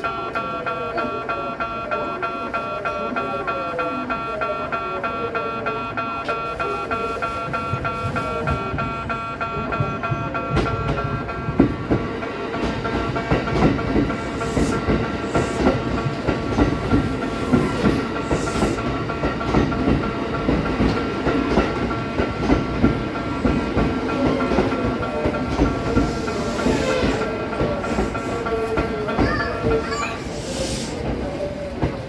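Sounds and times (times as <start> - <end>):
train wheels clacking over rail joints: 7.5 - 30.3
air hiss: 30.2 - 31.0.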